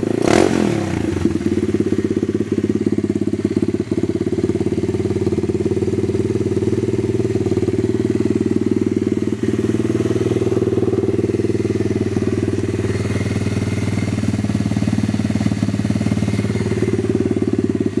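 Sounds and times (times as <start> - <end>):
motorbike engine idling: 0.0 - 18.0.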